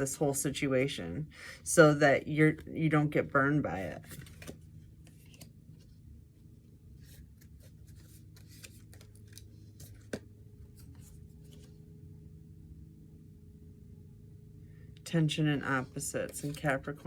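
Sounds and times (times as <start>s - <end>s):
low steady hum: 0.0s - 17.0s
paper rustling: 3.8s - 5.9s, 7.0s - 11.8s, 16.3s - 16.7s.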